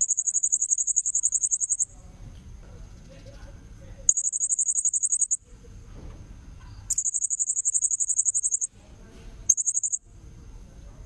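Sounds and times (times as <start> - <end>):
faint steady high tone: 0.0 - 2.0, 4.1 - 5.4, 6.8 - 8.7, 9.5 - 10.1.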